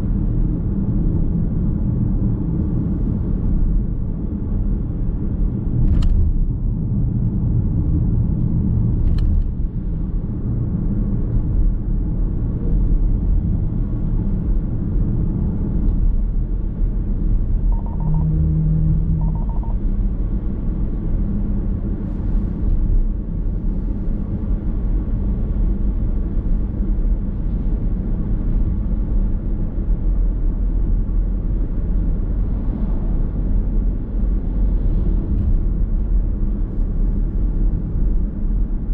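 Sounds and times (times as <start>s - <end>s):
car road and tyre rumble: 0.0s - 38.9s
brief tones: 17.7s - 19.8s.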